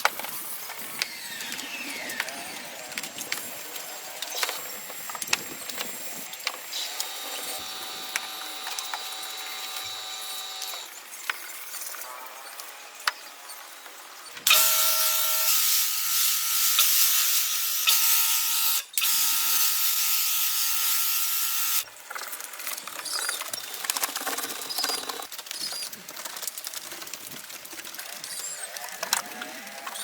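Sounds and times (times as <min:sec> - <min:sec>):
power tool whining: 0:00.0 - 0:10.9, 0:14.4 - 0:21.8.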